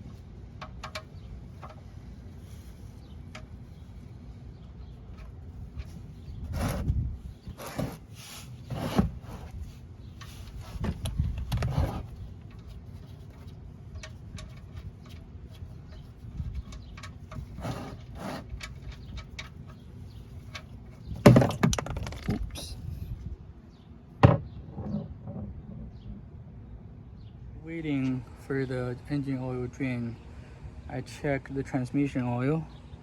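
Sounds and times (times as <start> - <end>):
tools rubbing and scraping: 0.9 - 4.1, 5.0 - 22.7.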